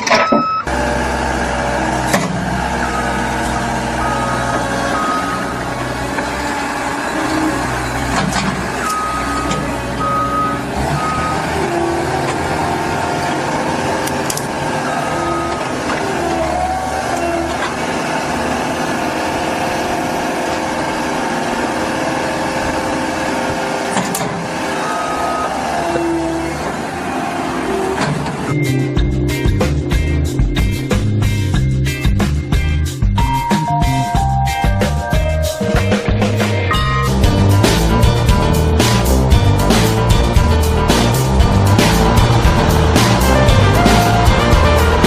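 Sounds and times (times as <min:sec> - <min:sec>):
reversing alarm beeping: 0:00.0 - 0:00.7, 0:02.8 - 0:05.9, 0:08.8 - 0:12.7, 0:14.8 - 0:17.5, 0:24.8 - 0:26.2
diesel engine running: 0:00.0 - 0:45.0.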